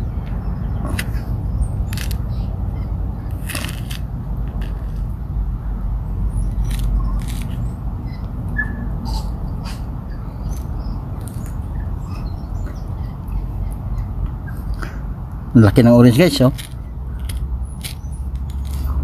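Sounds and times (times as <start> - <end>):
small birds chirping: 0.0 - 19.0
steady low rumble: 0.0 - 19.0
short clicks and crackles: 3.3 - 5.1.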